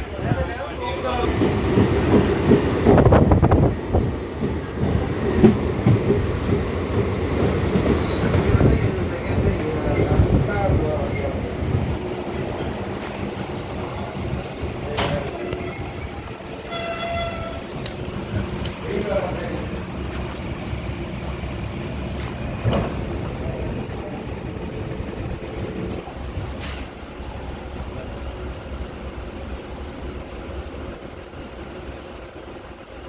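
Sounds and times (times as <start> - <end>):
train rumbling on rails: 0.0 - 33.0
wheels squealing on track: 5.8 - 7.1, 7.9 - 17.8.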